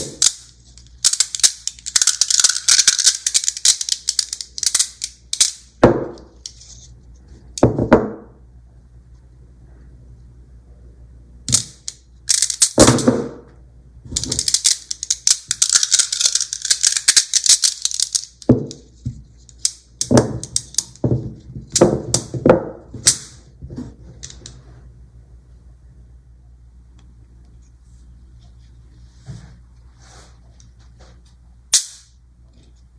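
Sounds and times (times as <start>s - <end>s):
magnet balls clicking together: 0.0s - 6.7s, 11.5s - 13.1s, 14.2s - 21.0s, 31.7s - 32.2s
magnet balls rattling: 0.0s - 6.9s, 11.5s - 13.2s, 14.1s - 23.5s.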